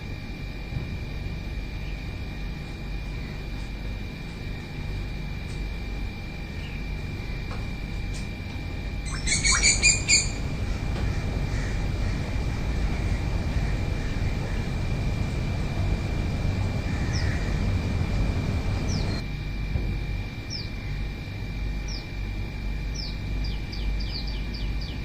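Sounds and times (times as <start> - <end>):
low background rumble: 0.0 - 25.0
thin high tone: 9.0 - 10.4
bird calling rapid notes: 9.0 - 14.6.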